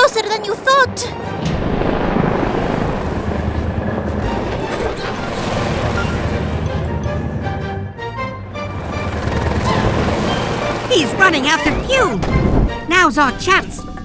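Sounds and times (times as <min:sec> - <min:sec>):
background music: 0:00.0 - 0:14.0
cartoon engine rumble: 0:08.5 - 0:14.0.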